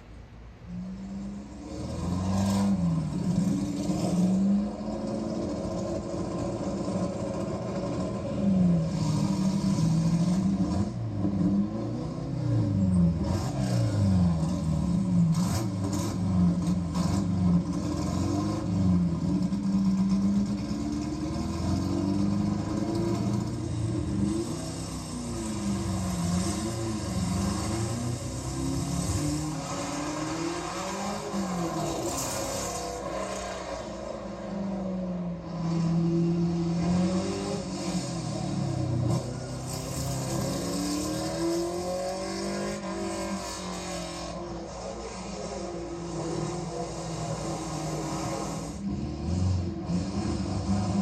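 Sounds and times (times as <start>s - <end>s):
car engine revving hard: 1.6s - 34.0s, 35.8s - 44.4s.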